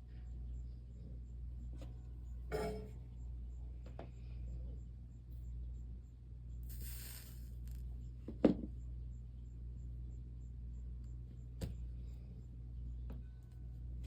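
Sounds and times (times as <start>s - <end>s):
steady low hum: 0.0s - 14.0s
short hiss: 6.7s - 7.8s.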